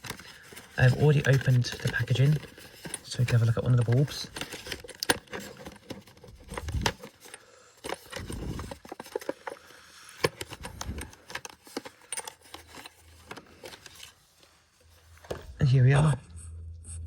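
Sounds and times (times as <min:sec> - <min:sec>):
packaging clicks and taps: 0:00.0 - 0:14.2.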